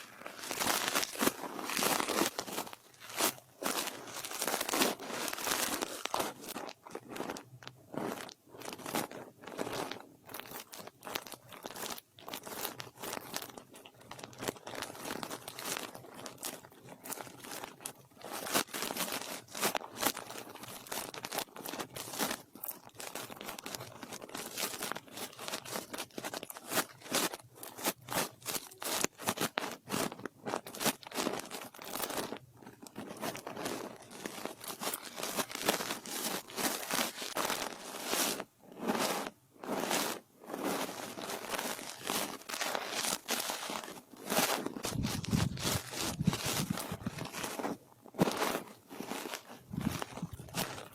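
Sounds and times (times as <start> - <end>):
brush scratching microphone: 33.0 - 50.9.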